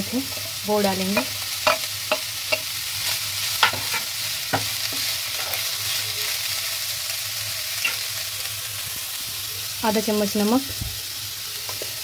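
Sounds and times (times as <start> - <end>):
food sizzling in hot oil: 0.0 - 12.0
spatula knocking on pan: 1.1 - 2.7.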